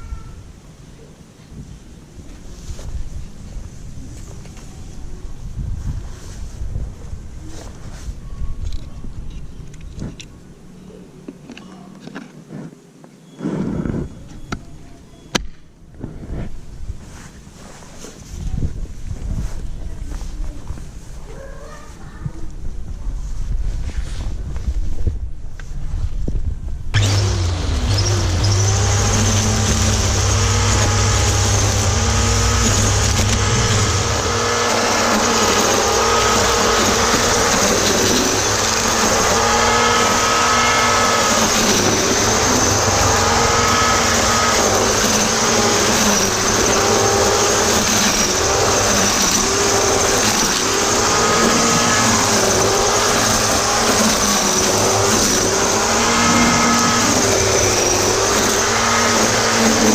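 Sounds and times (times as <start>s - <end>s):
string trimmer cutting grass: 27.0s - 59.9s.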